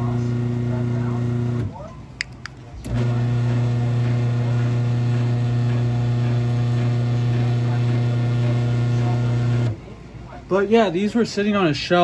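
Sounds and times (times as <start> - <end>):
garage door opener motor humming: 0.0 - 1.7, 2.8 - 9.8
motor starting click: 2.8 - 3.2.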